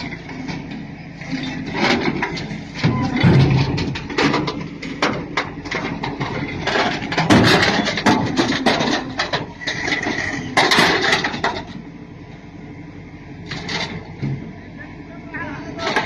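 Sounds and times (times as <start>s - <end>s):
rumbling background noise: 0.0s - 16.0s
irregular knocks and clattering: 1.6s - 9.6s.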